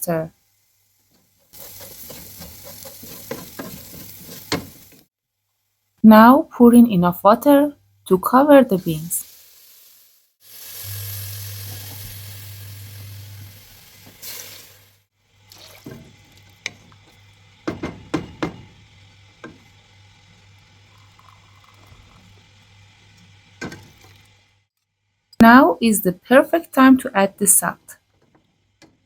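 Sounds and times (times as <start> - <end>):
water pouring into a pot: 15.4 - 16.6, 20.6 - 22.6.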